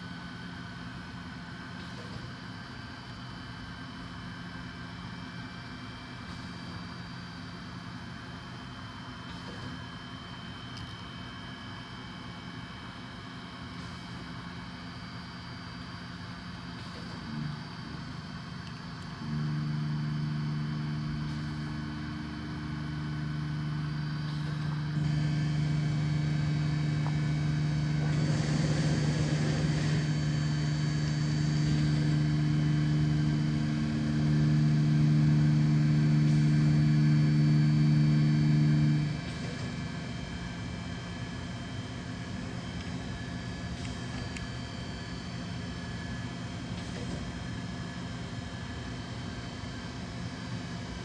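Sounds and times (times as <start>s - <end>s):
machine spindle running: 17.0s - 40.1s
hiss: 24.4s - 33.8s.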